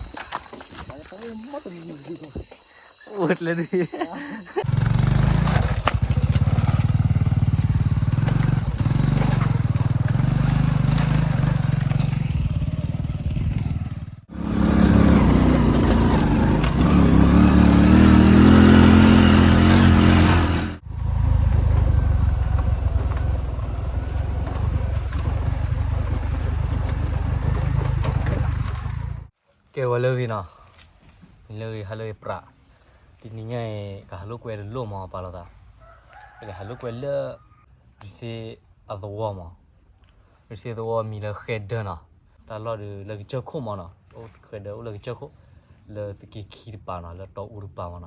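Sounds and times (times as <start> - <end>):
motorbike engine revving: 3.2 - 29.3.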